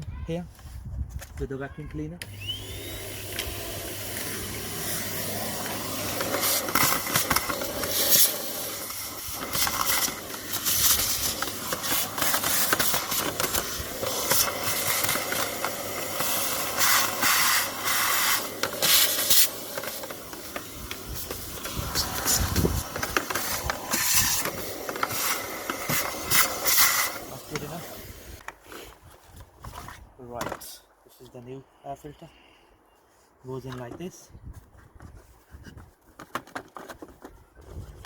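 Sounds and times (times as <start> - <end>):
vacuum cleaner sucking dirt: 2.2 - 28.4.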